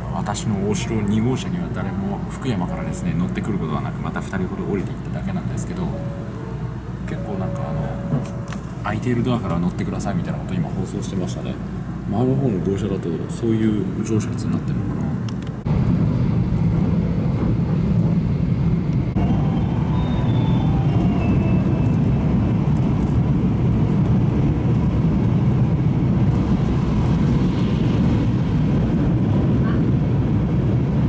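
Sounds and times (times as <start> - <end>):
train running rumble: 0.0 - 31.0.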